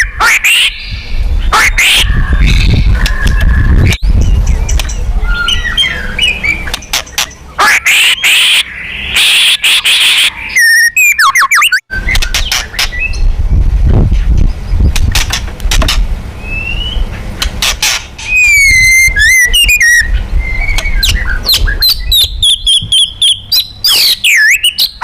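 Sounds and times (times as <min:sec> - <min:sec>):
steady low rumble: 0:00.0 - 0:07.6, 0:11.9 - 0:24.2
bird song with chirps and trills: 0:00.0 - 0:15.4, 0:16.3 - 0:25.0.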